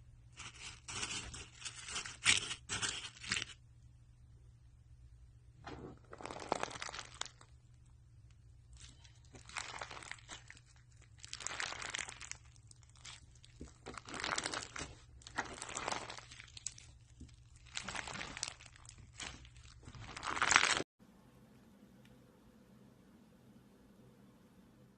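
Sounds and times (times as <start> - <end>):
slime squeezed by hand crackling: 6.1 - 7.5, 8.8 - 20.8.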